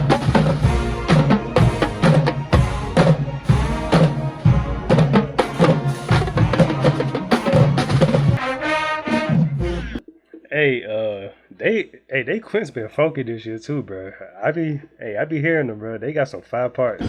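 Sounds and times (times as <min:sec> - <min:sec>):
drum hits: 0:00.0 - 0:08.4
marching band playing: 0:00.0 - 0:10.0.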